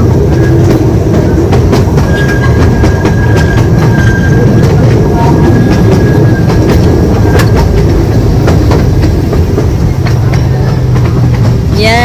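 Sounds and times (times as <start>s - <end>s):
train rumbling along track: 0.0s - 12.0s
high wheel squeal whine: 0.3s - 8.1s.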